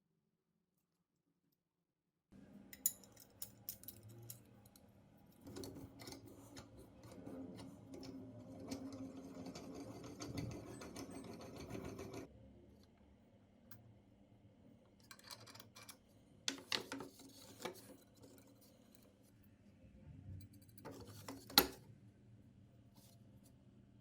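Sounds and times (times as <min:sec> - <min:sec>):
metal parts rubbing: 0:05.6 - 0:12.3.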